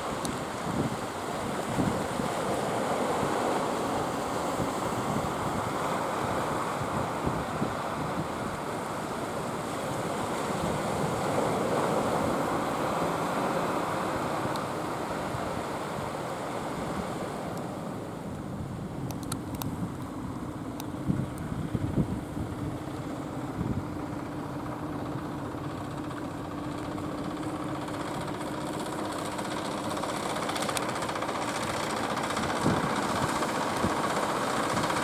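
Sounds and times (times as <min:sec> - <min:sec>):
surf rushing: 0:00.0 - 0:19.0, 0:19.8 - 0:35.0
wind buffeting microphone: 0:00.1 - 0:09.0, 0:18.5 - 0:35.0.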